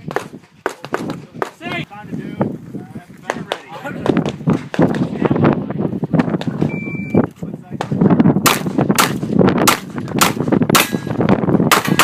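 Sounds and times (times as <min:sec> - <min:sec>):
shot timer beep: 0:06.7 - 0:07.3
pistol shots: 0:08.4 - 0:11.1, 0:11.7 - 0:12.0.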